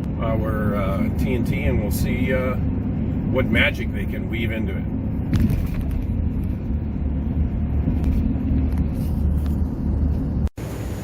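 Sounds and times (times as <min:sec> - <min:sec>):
truck engine and road noise: 0:00.0 - 0:11.0.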